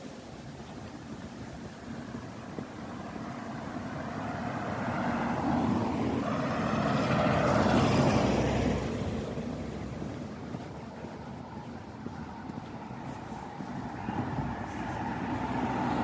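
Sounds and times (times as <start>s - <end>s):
vehicle passing by: 2.9s - 10.8s, 11.6s - 16.0s.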